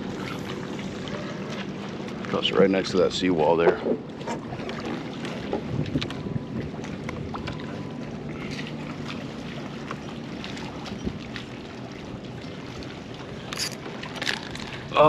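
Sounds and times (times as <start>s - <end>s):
water lapping on hull: 0.0s - 15.0s
wind on microphone: 5.6s - 6.7s.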